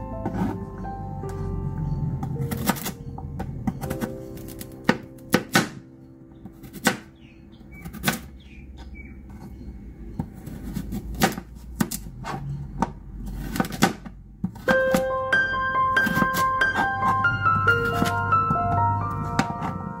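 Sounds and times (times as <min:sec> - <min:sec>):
knife chopping on plastic board: 0:03.8 - 0:05.8, 0:06.4 - 0:07.1, 0:07.8 - 0:08.3, 0:10.2 - 0:15.1, 0:16.0 - 0:17.2, 0:17.8 - 0:18.2.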